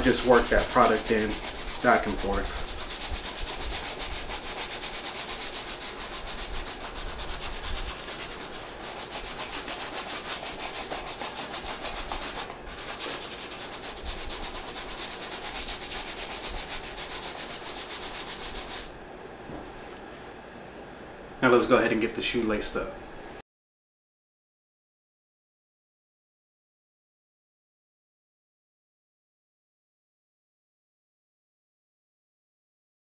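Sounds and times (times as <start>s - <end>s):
brush scrubbing suede: 0.0s - 18.9s.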